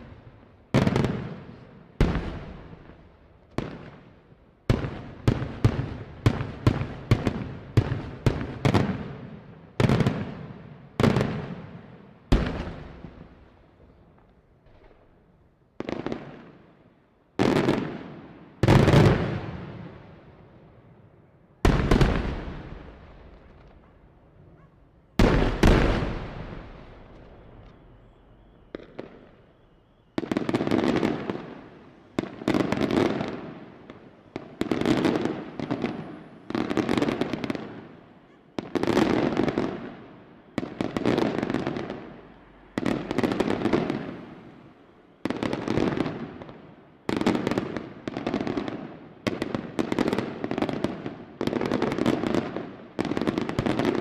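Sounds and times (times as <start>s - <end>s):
heavy firework booms: 25.2s - 27.5s.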